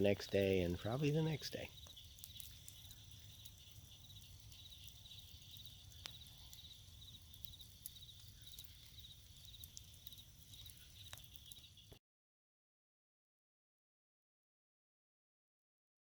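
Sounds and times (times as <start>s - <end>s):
bonfire pops: 0.0s - 12.0s
insects chirping: 0.0s - 12.0s.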